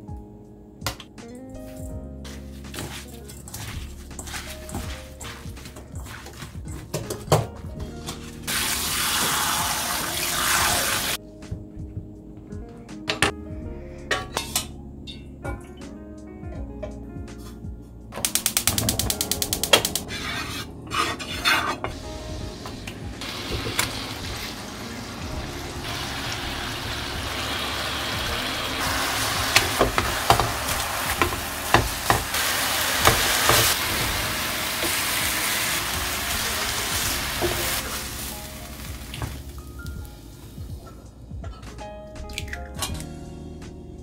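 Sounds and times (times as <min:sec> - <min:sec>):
wooden spatula knocking and scraping: 0:02.3 - 0:08.4, 0:19.8 - 0:22.0, 0:29.4 - 0:32.4
food sizzling in a frying pan: 0:08.5 - 0:11.2, 0:22.6 - 0:39.6
gas stove igniter clicking: 0:18.2 - 0:20.0.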